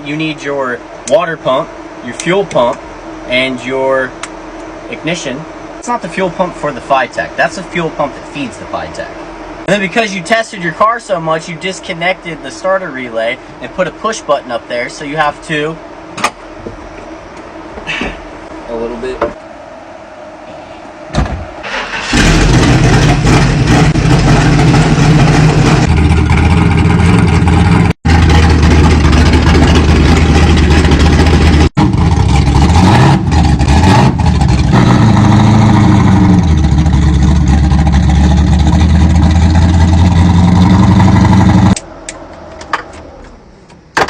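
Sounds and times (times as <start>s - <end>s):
engine revving: 21.6s - 43.3s
drag car engine running: 21.7s - 41.9s.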